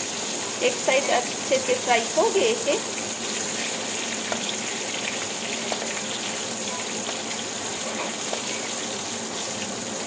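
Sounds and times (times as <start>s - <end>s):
frying sizzle: 0.0s - 10.0s.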